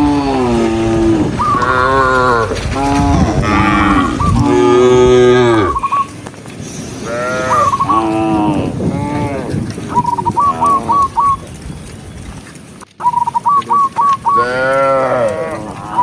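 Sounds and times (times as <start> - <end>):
cattle mooing: 0.0 - 6.0, 7.0 - 11.2, 14.3 - 16.0.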